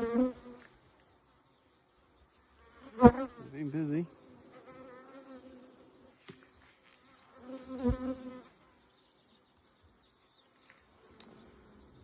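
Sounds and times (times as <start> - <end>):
honeybees buzzing: 0.0 - 0.7, 2.5 - 8.9.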